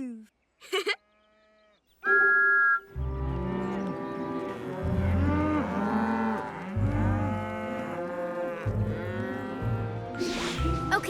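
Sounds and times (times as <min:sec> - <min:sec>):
cartoon cows mooing: 0:03.2 - 0:10.2.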